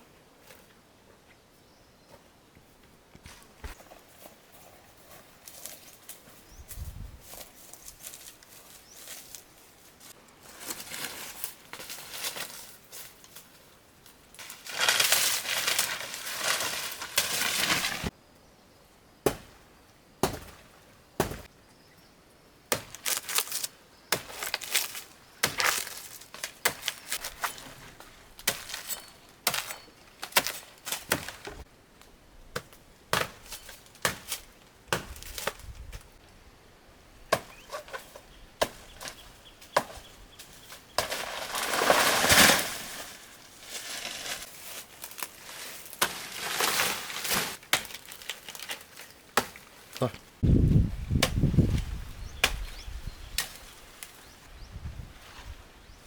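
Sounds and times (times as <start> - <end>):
dry plants rustling and crunching: 3.1 - 18.2, 22.7 - 36.4, 37.2 - 56.0
blade chopping plants: 19.2 - 19.6, 20.2 - 21.5, 22.7 - 27.7, 28.4 - 31.6, 32.6 - 36.0, 37.3 - 43.1, 43.7 - 50.1, 51.1 - 54.2.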